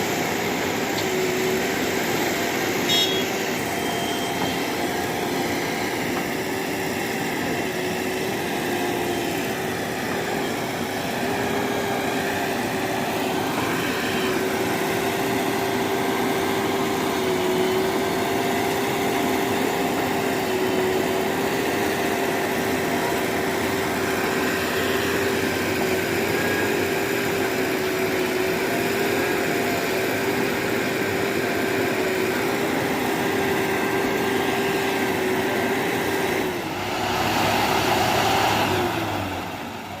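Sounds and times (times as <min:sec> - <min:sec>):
heavy diesel engine running: 0:00.0 - 0:40.0
steady whine: 0:31.8 - 0:40.0.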